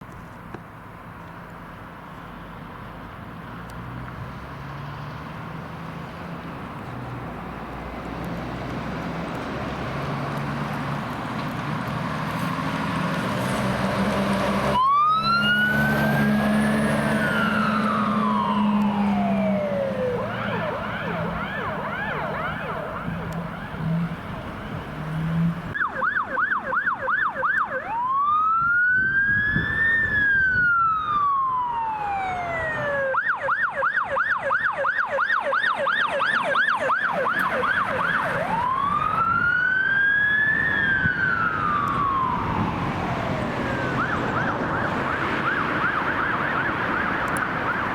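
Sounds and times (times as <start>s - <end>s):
truck engine hum: 0.0s - 28.5s, 29.5s - 47.9s
fire engine siren wailing: 4.4s - 47.9s
second emergency siren: 14.6s - 47.9s.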